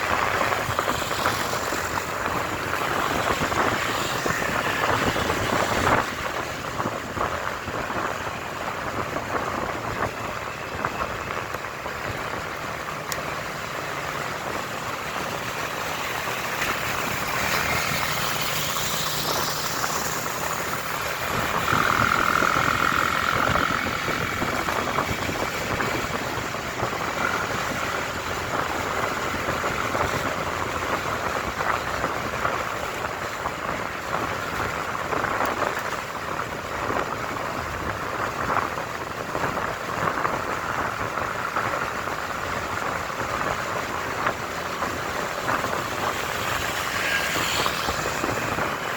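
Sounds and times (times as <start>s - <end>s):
motorcycle engine running: 0.0s - 48.9s
wind and road noise: 0.0s - 48.9s.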